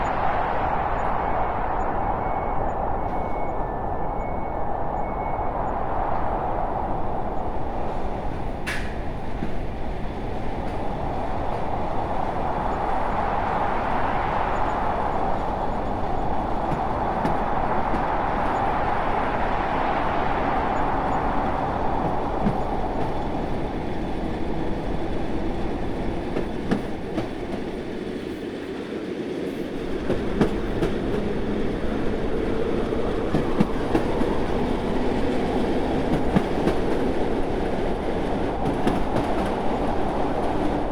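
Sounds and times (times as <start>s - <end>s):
train rumbling on rails: 0.0s - 40.9s.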